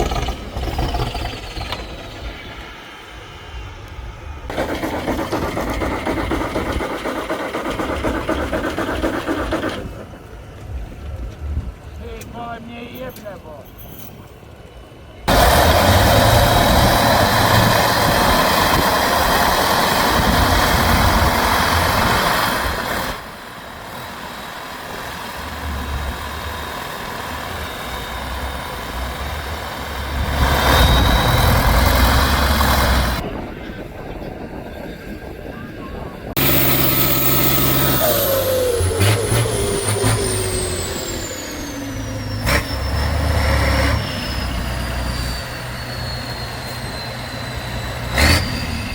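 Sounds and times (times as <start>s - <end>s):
truck engines revving: 0.0s - 12.3s, 15.2s - 33.3s, 36.3s - 48.9s
engine whine falling: 36.3s - 43.2s.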